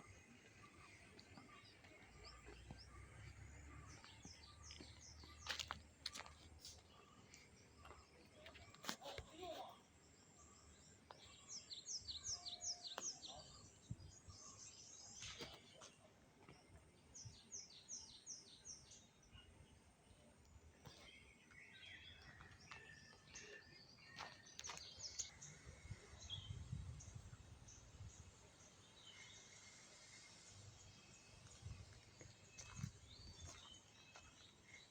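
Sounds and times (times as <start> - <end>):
faint birdsong: 0.0 - 34.9
bird chirps: 10.4 - 16.0.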